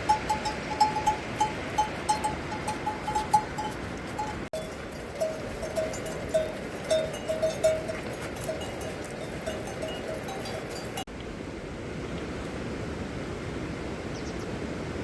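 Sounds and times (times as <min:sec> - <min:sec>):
livestock bells clinking: 0:00.0 - 0:11.1.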